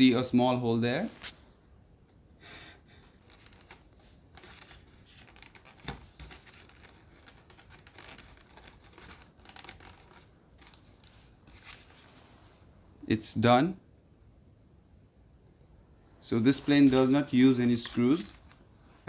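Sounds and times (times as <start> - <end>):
rustling and scraping: 3.0 - 12.7, 16.4 - 19.0.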